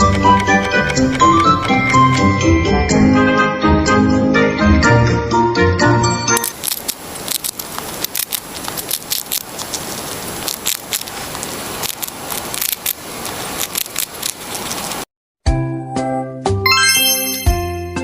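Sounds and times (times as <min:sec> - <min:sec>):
mouse clicking and rustling: 0:00.0 - 0:02.2, 0:06.4 - 0:15.0.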